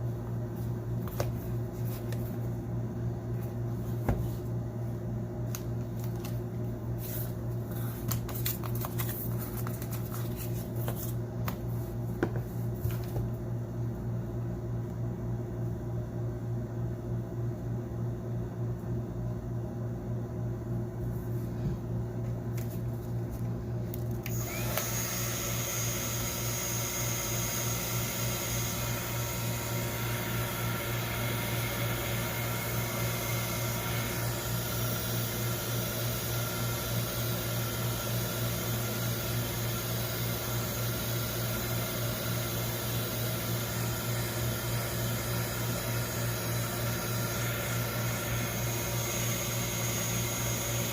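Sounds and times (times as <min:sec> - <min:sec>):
steady low hum: 0:00.0 - 0:24.6.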